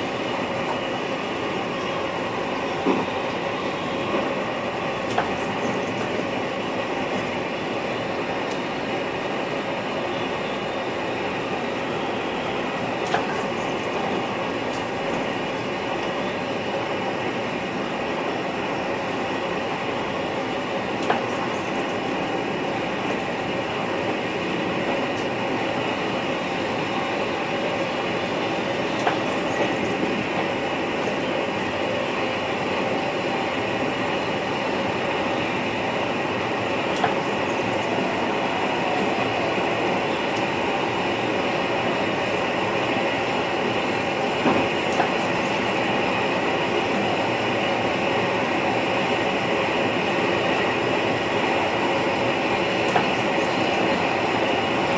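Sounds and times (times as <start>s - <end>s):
train running on rails: 0.0s - 54.9s.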